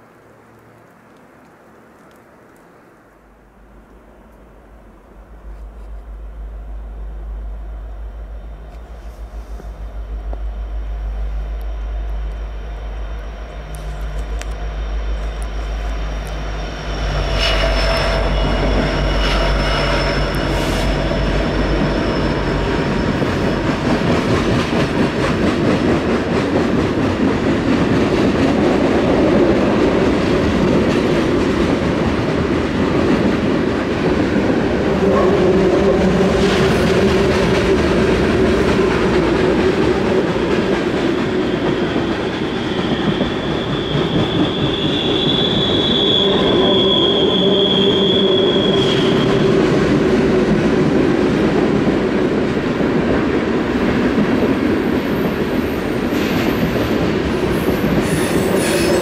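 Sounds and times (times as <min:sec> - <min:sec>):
diesel locomotive drone: 0:00.0 - 0:59.0
train wheels on rails: 0:04.2 - 0:59.0
high wheel squeal: 0:12.8 - 0:24.3, 0:41.2 - 0:49.8, 0:54.8 - 0:59.0.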